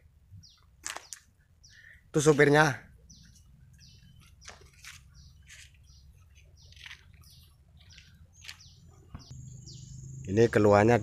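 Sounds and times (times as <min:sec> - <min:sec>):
bird chirps sliding downward: 0:03.1 - 0:10.4.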